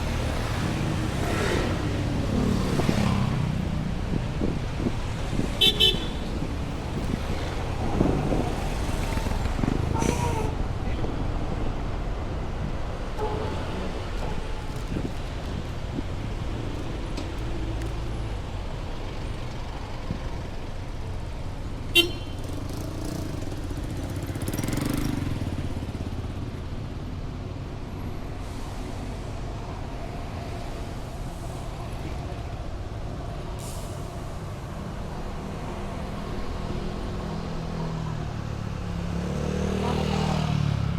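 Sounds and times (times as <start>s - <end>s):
low rumble of traffic: 0.0s - 40.9s.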